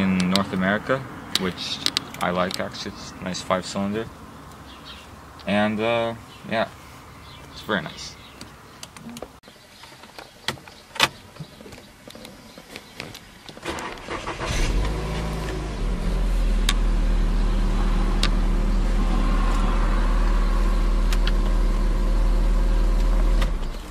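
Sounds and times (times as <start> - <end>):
car engine starter cranking: 13.6 - 16.1
car engine idling: 13.7 - 23.9.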